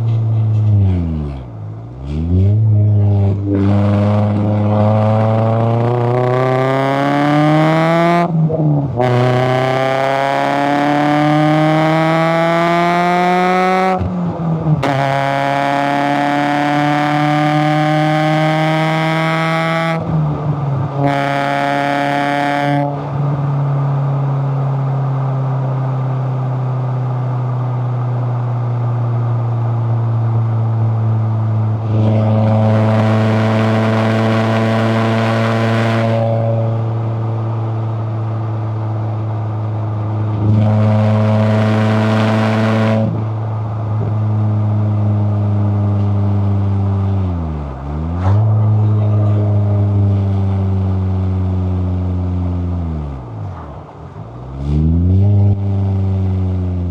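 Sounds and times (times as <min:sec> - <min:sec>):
car engine pulling: 0:00.0 - 0:56.9.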